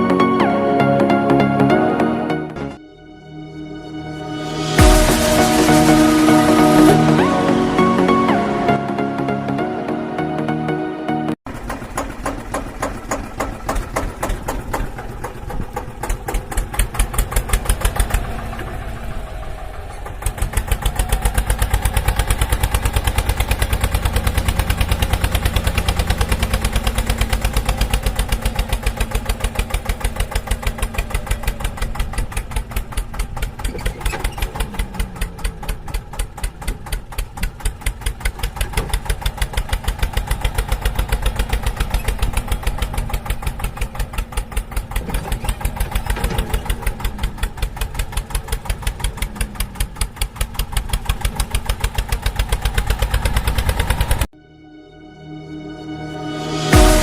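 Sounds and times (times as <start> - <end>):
small engine pulsing: 11.5 - 54.3.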